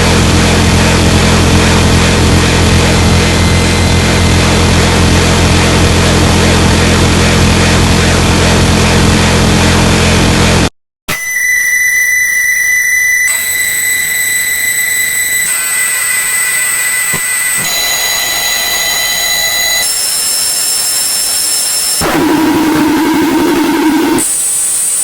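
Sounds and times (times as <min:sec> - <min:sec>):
low buzzing tone: 0:00.0 - 0:09.4, 0:11.4 - 0:24.9
high whistling tones: 0:11.1 - 0:24.8.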